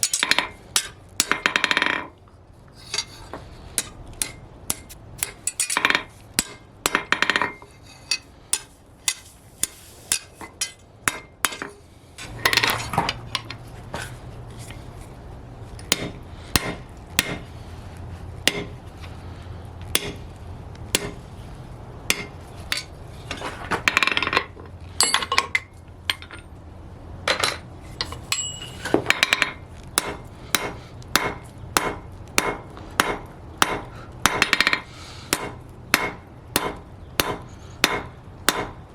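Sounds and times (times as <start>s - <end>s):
hammer striking steel on anvil: 0.0s - 2.1s, 2.8s - 12.8s, 15.8s - 17.5s, 18.4s - 18.8s, 19.9s - 20.2s, 20.9s - 21.2s, 22.1s - 22.9s, 23.9s - 26.4s, 27.4s - 38.8s
low steady hum: 0.0s - 38.9s.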